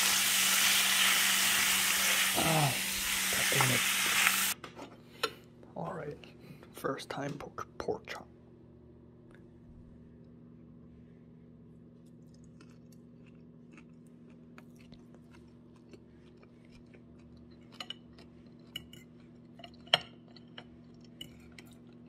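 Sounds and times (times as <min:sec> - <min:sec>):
steady low hum: 0:01.4 - 0:22.0
person chewing food: 0:12.0 - 0:22.0.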